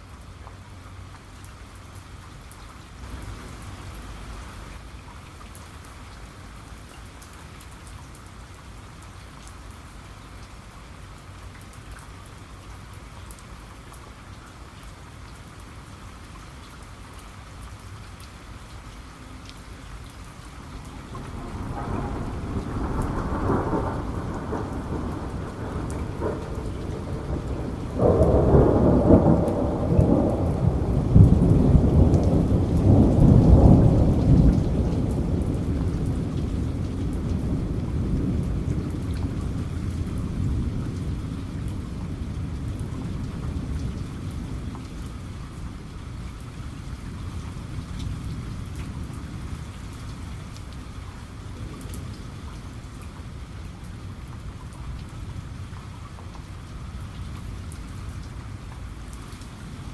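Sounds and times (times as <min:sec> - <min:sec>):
heavy rain: 0:00.0 - 0:59.9
thunder rumbling: 0:21.0 - 0:45.8.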